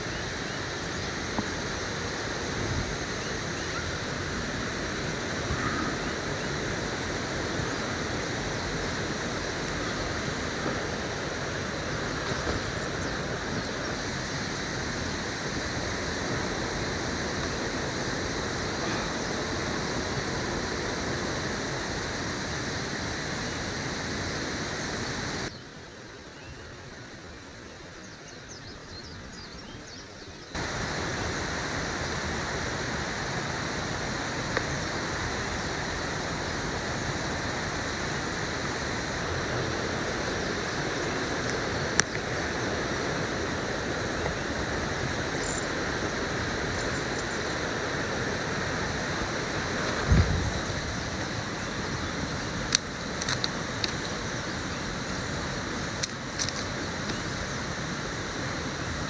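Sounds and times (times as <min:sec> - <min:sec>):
river water rushing: 0:30.6 - 0:59.0.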